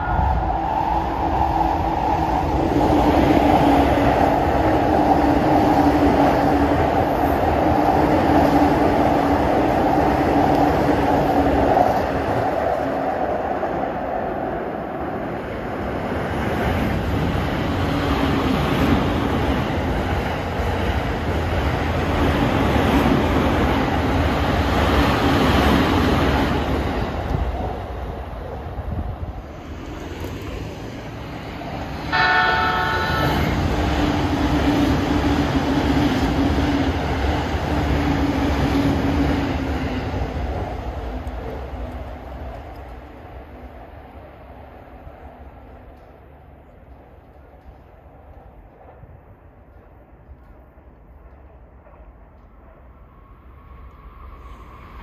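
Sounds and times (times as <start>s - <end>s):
train wheels rumbling on rail: 0.0s - 55.0s
train horn blast: 32.1s - 33.7s.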